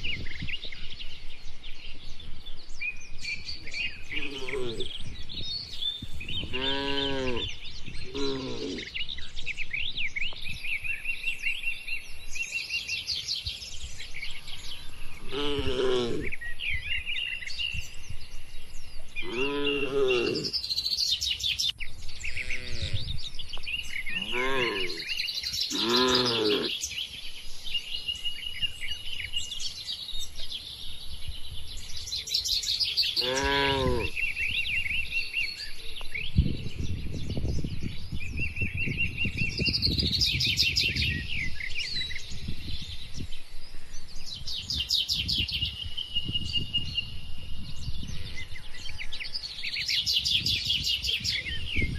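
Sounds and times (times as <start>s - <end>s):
birds chirping and trilling: 0.0s - 51.9s
loud low animal calls: 4.0s - 5.1s, 6.4s - 9.0s, 14.8s - 16.5s, 19.2s - 20.6s, 24.0s - 26.8s, 33.1s - 34.4s.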